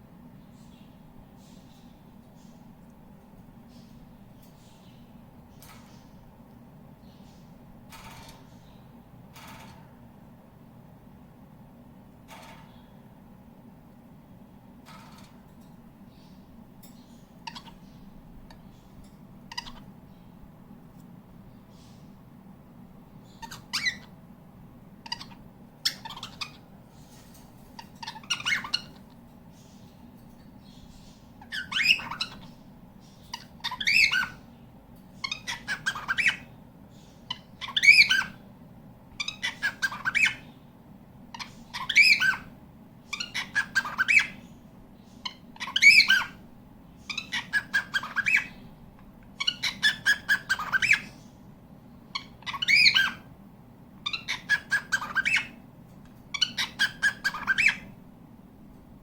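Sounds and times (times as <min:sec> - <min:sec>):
steady low hum: 0:00.0 - 0:59.0
cockatiel calling: 0:17.4 - 0:18.0, 0:19.5 - 0:19.9, 0:23.2 - 0:24.1, 0:25.0 - 0:26.7, 0:27.8 - 0:29.0, 0:31.4 - 0:32.6, 0:33.2 - 0:34.4, 0:35.2 - 0:38.4, 0:39.2 - 0:40.6, 0:41.3 - 0:42.5, 0:43.1 - 0:44.5, 0:45.2 - 0:46.4, 0:47.0 - 0:48.6, 0:49.4 - 0:51.2, 0:52.1 - 0:53.3, 0:54.0 - 0:55.6, 0:56.3 - 0:57.9.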